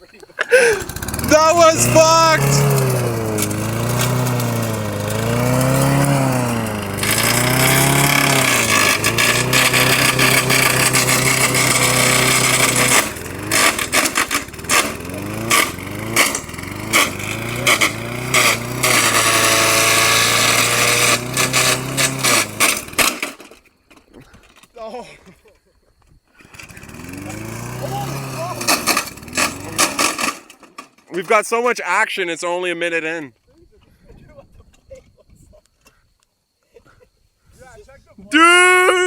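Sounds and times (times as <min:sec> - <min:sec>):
lawn mower engine revving: 0:00.4 - 0:23.6, 0:26.4 - 0:31.5.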